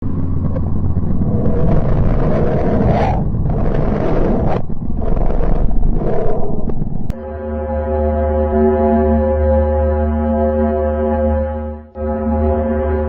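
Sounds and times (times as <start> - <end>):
rumbling roar: 0.0 - 7.2.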